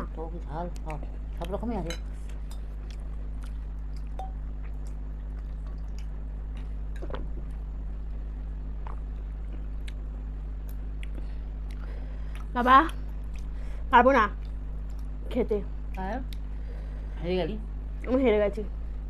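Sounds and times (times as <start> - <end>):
low hum: 0.0 - 19.0
person chewing food: 2.2 - 7.7, 8.7 - 13.6.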